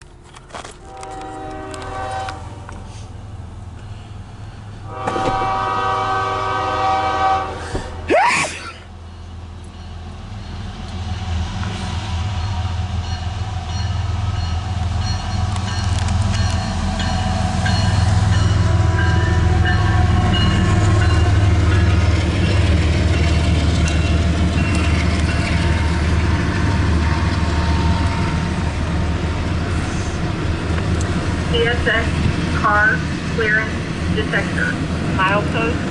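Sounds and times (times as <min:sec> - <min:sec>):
freight train rumbling past: 0:00.0 - 0:35.9
train horn blasts: 0:00.8 - 0:02.9, 0:04.8 - 0:08.0.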